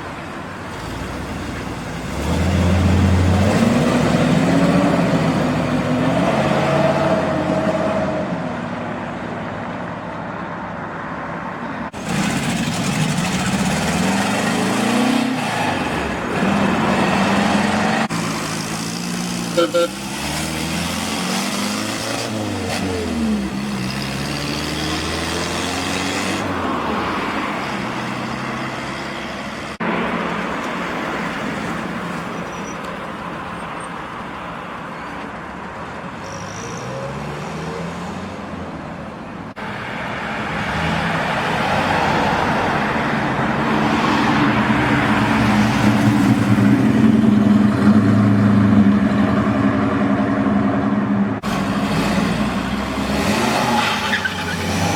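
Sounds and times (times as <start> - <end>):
car engines pulling away: 11.9 - 30.0, 39.8 - 54.9.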